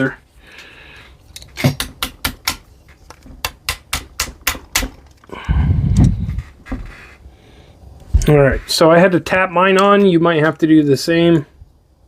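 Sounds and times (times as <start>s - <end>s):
low handling rumble: 5.4s - 6.6s.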